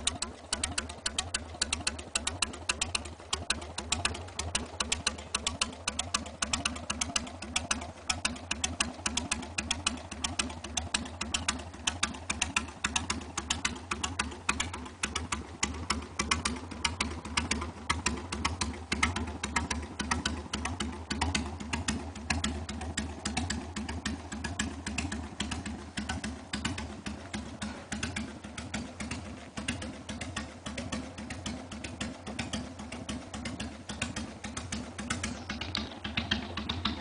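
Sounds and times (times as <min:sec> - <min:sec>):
motorcycle engine idling: 0:00.0 - 0:37.0.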